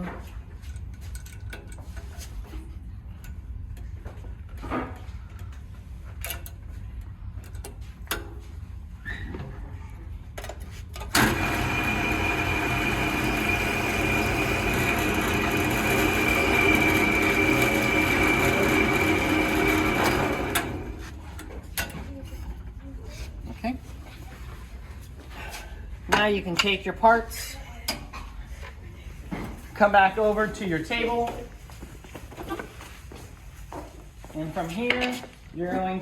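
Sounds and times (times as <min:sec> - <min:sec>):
drill press whining: 0:11.1 - 0:21.3.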